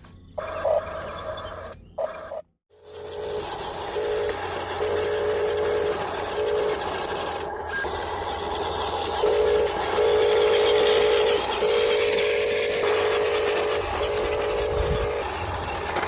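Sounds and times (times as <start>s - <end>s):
small electric motors whining: 0.4s - 16.0s
steady noisy background: 0.4s - 16.0s.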